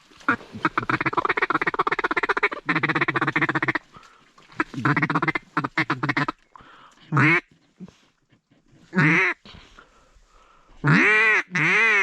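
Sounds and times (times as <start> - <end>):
duck call feeding chuckle: 7.1 - 7.4, 8.9 - 9.4.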